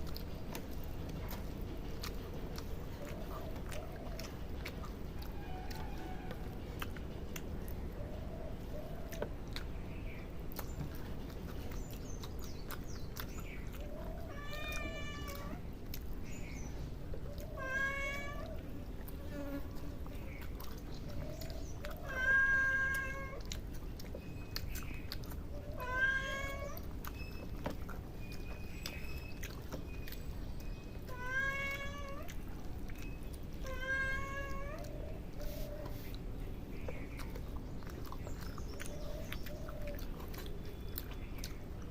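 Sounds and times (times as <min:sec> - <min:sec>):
animal calling: 0:12.4 - 0:15.7.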